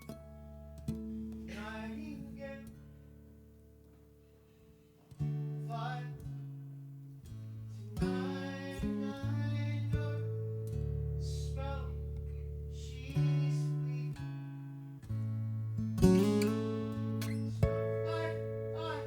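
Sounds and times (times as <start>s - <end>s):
acoustic guitar strumming chords: 7.4s - 19.0s
low bass notes: 15.1s - 19.0s.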